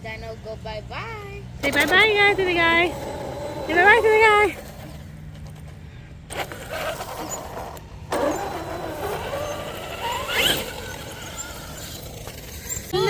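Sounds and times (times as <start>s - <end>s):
electric motor whining: 1.6s - 5.0s, 6.3s - 13.0s
tyres on the ground: 1.6s - 13.0s.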